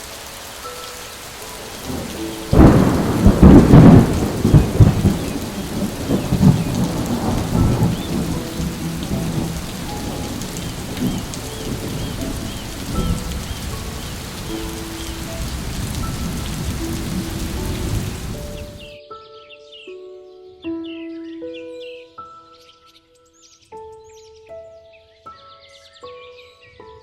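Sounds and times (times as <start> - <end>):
steady rain: 0.0 - 18.9
thunderclap rumbling: 1.7 - 18.9.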